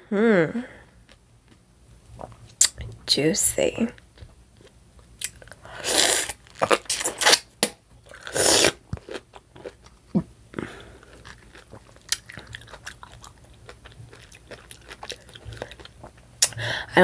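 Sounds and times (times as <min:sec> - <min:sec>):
biting and chewing: 0:06.2 - 0:10.1, 0:11.0 - 0:16.3.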